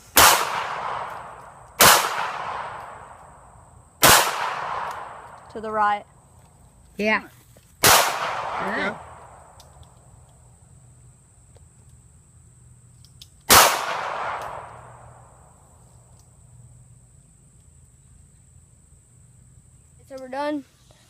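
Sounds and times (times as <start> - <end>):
pistol shot: 0.1 - 3.2, 4.0 - 5.3, 7.8 - 9.2, 13.5 - 15.0.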